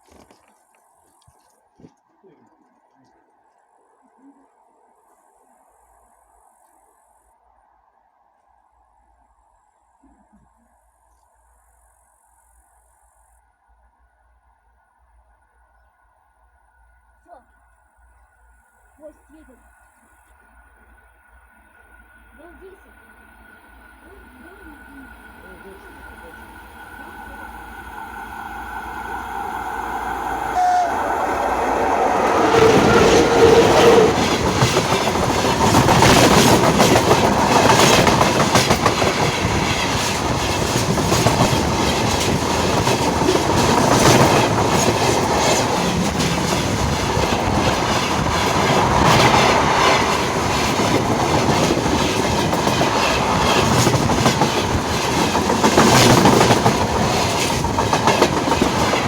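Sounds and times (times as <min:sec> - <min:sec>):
train passing overhead: 0:11.4 - 0:59.0
wheels rattling on rail: 0:22.4 - 0:59.0.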